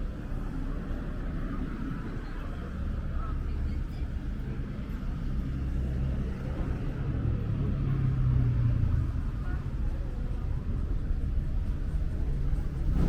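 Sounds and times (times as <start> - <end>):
city street ambience: 0.0 - 13.0
vehicle engine rumble: 0.0 - 13.0.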